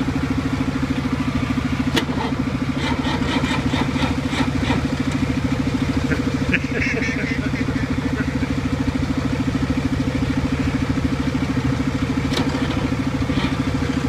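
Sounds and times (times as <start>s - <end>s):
engine cranking by starter: 1.8s - 8.7s, 11.5s - 14.0s.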